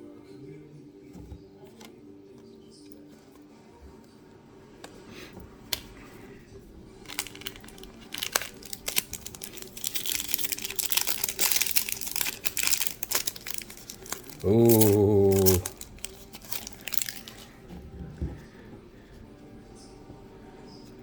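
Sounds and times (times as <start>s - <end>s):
plastic wrapper crinkling: 7.0s - 17.5s.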